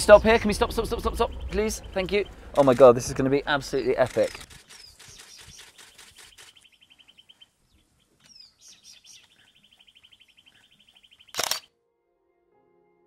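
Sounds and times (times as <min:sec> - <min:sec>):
bird dry trill: 0:03.8 - 0:07.4
loud sharp click: 0:11.3 - 0:11.7.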